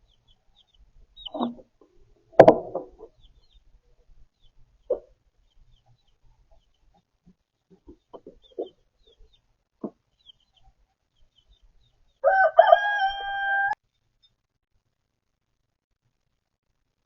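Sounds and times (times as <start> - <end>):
soft clucks: 4.8 - 5.2, 5.8 - 10.7
rooster crowing: 12.2 - 13.8.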